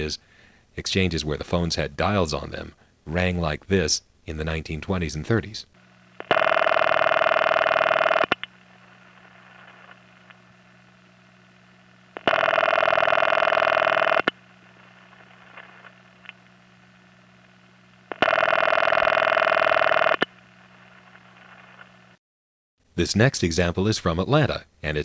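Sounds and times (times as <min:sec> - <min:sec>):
low line hum: 0:05.7 - 0:22.2
harsh buzzy telephone ringing: 0:05.8 - 0:08.5, 0:12.1 - 0:15.9, 0:18.1 - 0:20.4.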